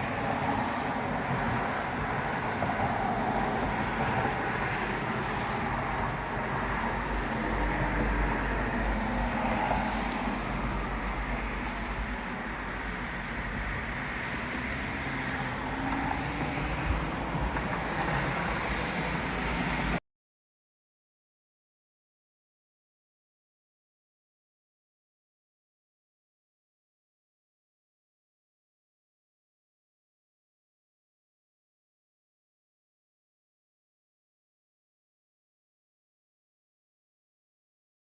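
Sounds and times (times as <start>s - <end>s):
storm wind buffeting microphone: 0.0s - 20.0s.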